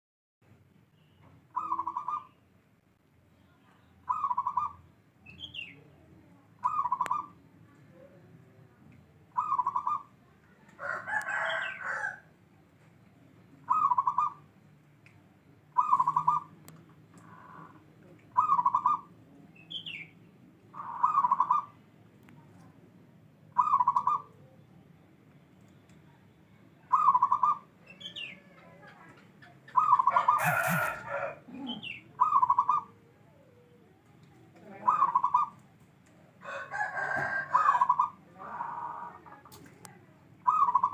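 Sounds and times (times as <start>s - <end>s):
faint bird chirps: 0.7s - 2.6s, 3.2s - 22.7s, 37.8s - 40.9s
dove cooing: 1.6s - 2.3s, 6.6s - 7.4s, 9.3s - 10.1s, 13.7s - 14.4s, 15.8s - 16.5s, 20.8s - 21.7s, 26.9s - 27.7s, 28.4s - 35.6s, 40.4s - 40.9s
rooster crowing: 10.8s - 12.3s, 30.1s - 31.4s, 36.4s - 38.0s.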